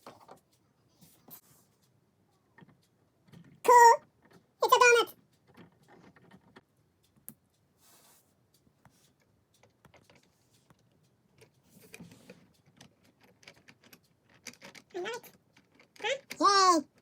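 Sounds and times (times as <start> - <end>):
short rustle: 7.8 - 9.2
plastic bricks clicking together: 12.6 - 16.4.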